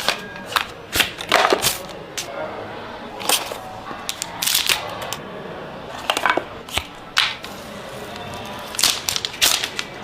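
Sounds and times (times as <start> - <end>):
packaging rustling: 8.2 - 10.0.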